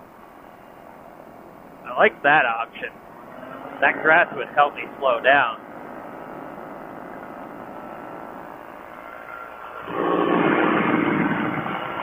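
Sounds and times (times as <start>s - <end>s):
ultralight aircraft engine buzzing: 2.8s - 12.0s.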